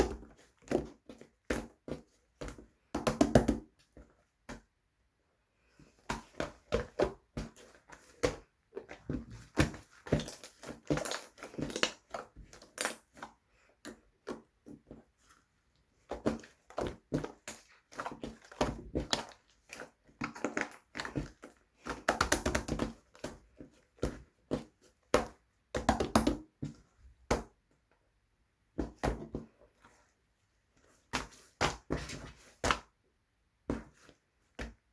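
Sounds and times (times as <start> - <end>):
slime squelching and popping: 7.0 - 13.3.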